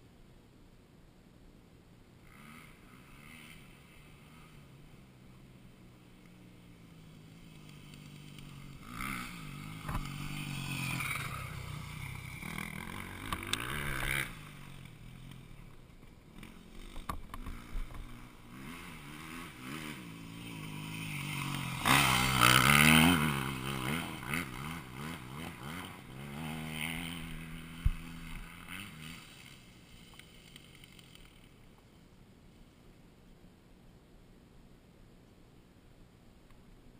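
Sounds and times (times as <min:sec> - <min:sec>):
dirt bike engine revving: 0:02.2 - 0:05.7, 0:06.4 - 0:15.7, 0:16.3 - 0:31.5.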